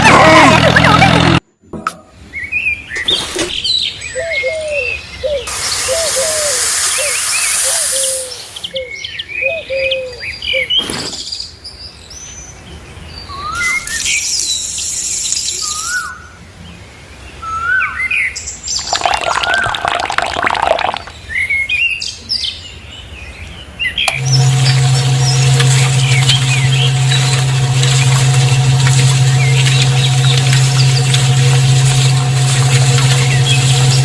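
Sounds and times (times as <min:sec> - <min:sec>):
hissing noise: 0:05.5 - 0:08.7, 0:24.1 - 0:34.0.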